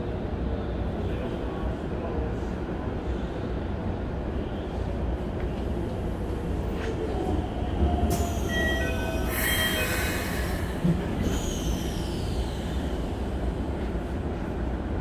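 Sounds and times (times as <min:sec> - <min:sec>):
train wheels rumbling on rail: 0:00.0 - 0:15.0
high-pitched wheel squeals: 0:08.2 - 0:12.8.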